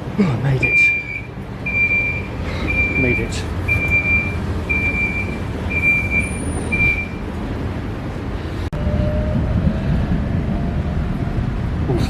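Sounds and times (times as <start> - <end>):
low rumble of train: 0.0 - 12.0
door-closing warning beeps: 0.6 - 7.2.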